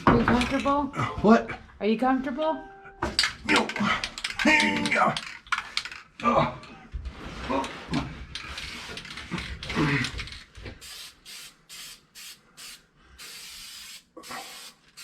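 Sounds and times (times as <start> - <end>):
spray paint hissing: 10.8 - 15.0.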